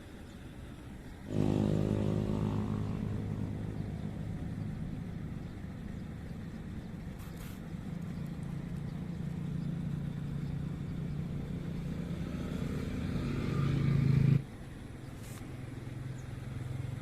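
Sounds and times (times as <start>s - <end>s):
small engine running: 1.3s - 14.4s.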